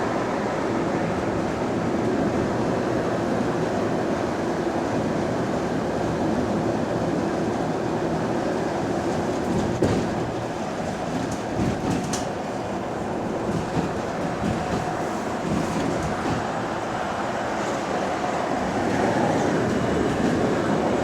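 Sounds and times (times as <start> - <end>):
bus road noise: 0.0 - 21.0
light rattles and clicks: 9.3 - 12.5.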